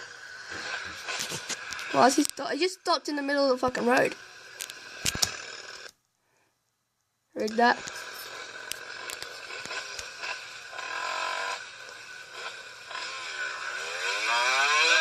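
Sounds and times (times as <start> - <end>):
motorcycle engine accelerating: 0.0 - 2.5, 3.2 - 5.9, 7.4 - 15.0
road noise: 0.0 - 6.0, 7.4 - 15.0
sharp clicks: 4.6 - 6.0.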